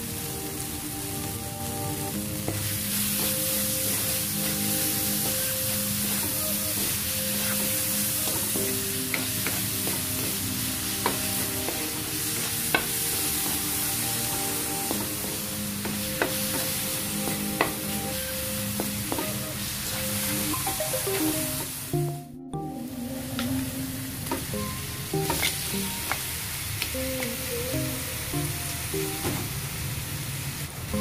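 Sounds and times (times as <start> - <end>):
food sizzling in a pan: 0.0 - 22.1, 22.8 - 31.0
spatula tapping a pan: 2.4 - 13.8, 14.8 - 18.0, 18.7 - 19.5.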